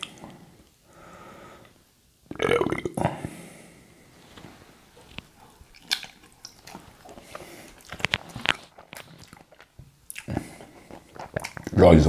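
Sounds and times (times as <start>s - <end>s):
wet chewing: 4.9s - 11.8s
lip smacks: 5.0s - 11.8s.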